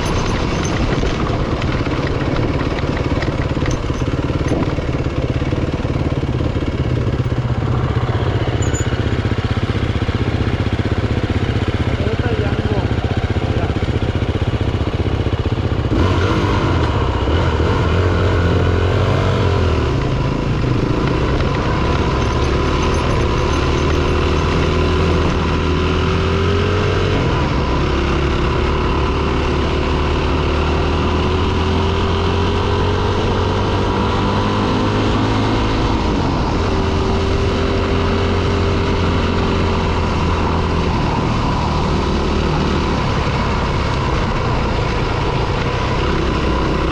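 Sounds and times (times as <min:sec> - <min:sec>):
dirt bike engine running: 0:00.0 - 0:46.9.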